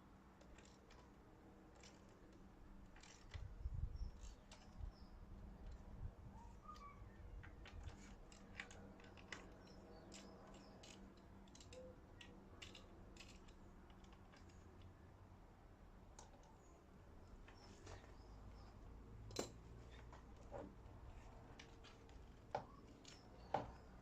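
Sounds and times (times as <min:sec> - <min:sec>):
hand tools clicking and tapping: 0:07.4 - 0:14.9, 0:21.5 - 0:24.0.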